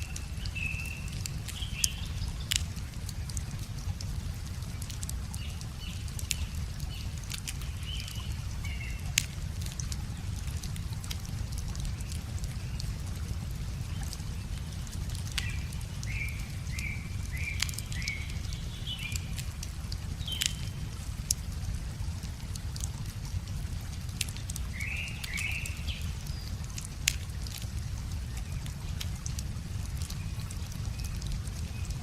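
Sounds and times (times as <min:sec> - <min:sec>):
bonfire crackling: 0:00.0 - 0:32.0
bird chirping: 0:20.2 - 0:20.8.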